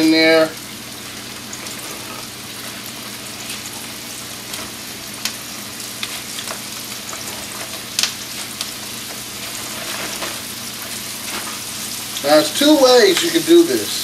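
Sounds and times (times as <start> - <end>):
food frying in hot oil: 0.0 - 14.0
oil crackling and popping: 0.0 - 14.0.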